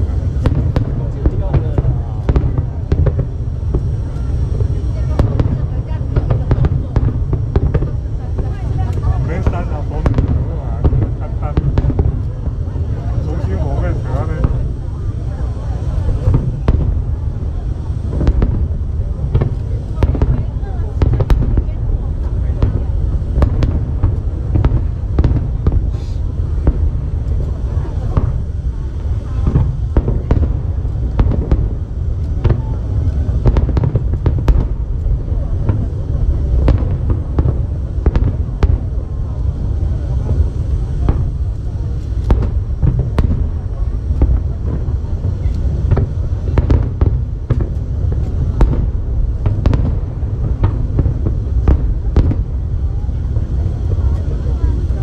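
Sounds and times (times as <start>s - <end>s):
low rumble: 0.0s - 55.0s
firework shells bursting: 15.8s - 52.7s.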